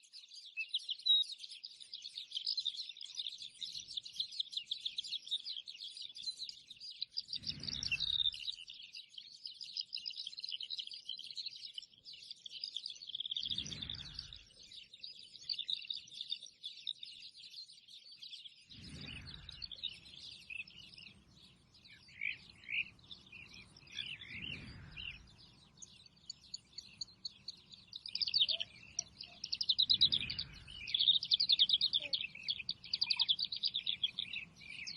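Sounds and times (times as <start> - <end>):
small birds chirping: 0.0 - 34.9
short low rumbles: 18.7 - 20.2, 29.9 - 31.0.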